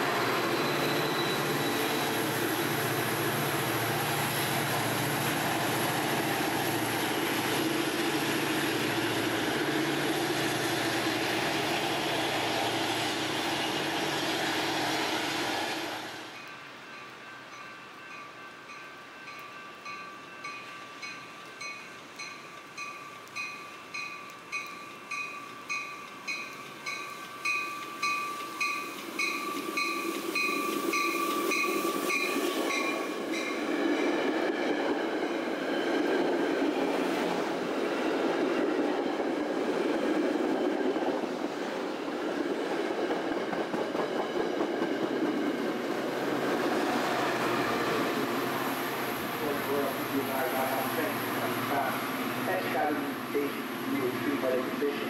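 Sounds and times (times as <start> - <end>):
commuter train rumbling: 0.0 - 55.0
railroad warning bell ringing: 16.3 - 33.7.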